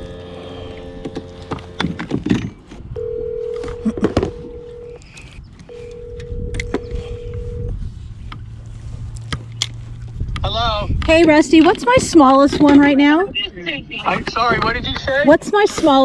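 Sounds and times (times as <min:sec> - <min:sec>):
telephone ringback tone: 0:03.0 - 0:05.0, 0:05.7 - 0:07.8.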